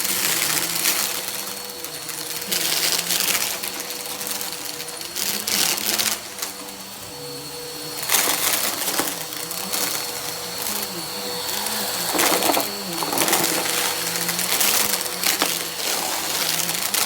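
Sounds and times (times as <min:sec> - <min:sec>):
vacuum cleaner motor whine: 0:00.0 - 0:17.0
confetti rattling through vacuum: 0:10.7 - 0:17.0.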